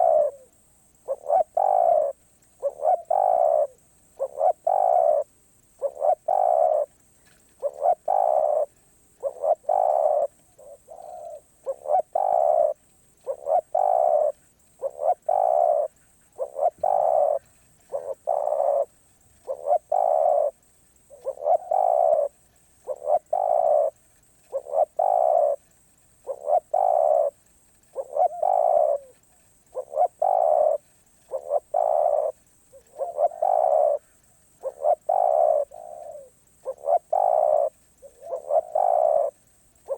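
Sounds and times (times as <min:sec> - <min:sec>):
dove cooing: 0:00.0 - 0:25.6, 0:26.2 - 0:39.9.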